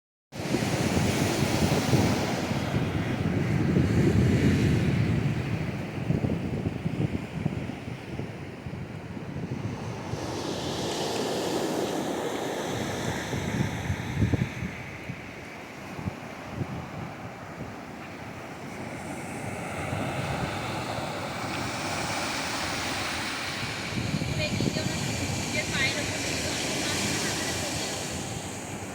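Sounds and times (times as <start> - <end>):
ocean surf washing onto beach: 0.4 - 28.9
wind buffeting microphone: 0.4 - 28.9.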